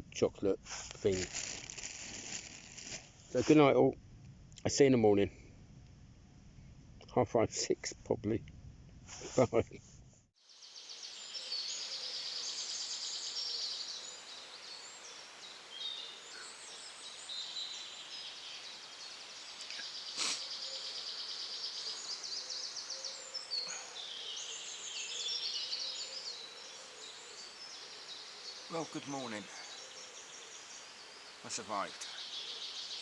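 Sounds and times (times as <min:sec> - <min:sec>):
songbirds chirping and trilling: 0:10.5 - 0:33.0.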